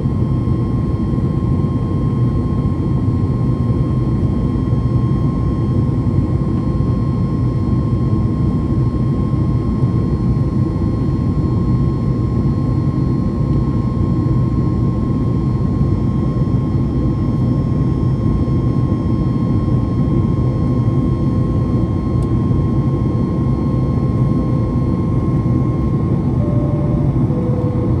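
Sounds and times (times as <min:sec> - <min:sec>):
jet engine rumble in cabin: 0:00.0 - 0:28.0
thin constant whine: 0:25.0 - 0:28.0.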